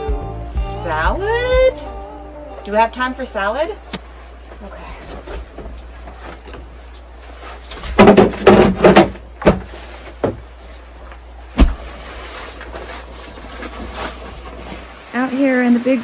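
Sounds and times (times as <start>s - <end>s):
door thump: 11.6s - 11.9s.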